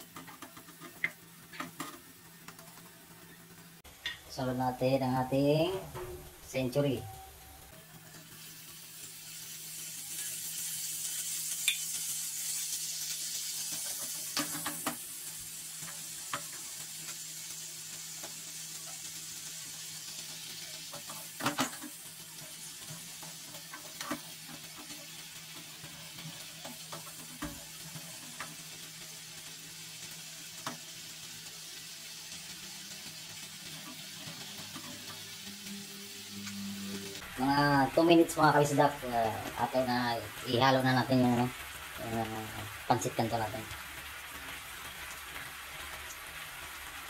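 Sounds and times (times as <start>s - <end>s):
fish sizzling in a frying pan: 0.0s - 47.0s.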